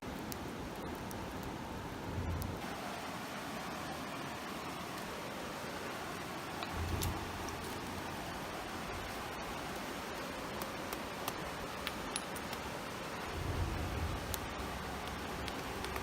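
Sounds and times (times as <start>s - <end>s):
campfire crackling: 0.0s - 16.0s
creek rushing: 0.0s - 16.0s
low rumble: 2.0s - 2.6s.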